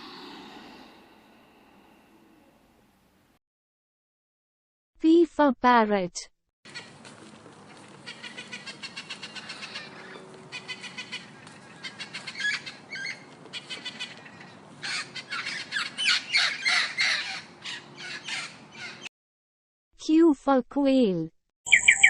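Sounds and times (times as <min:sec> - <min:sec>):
parrot squawking: 0:08.0 - 0:19.1.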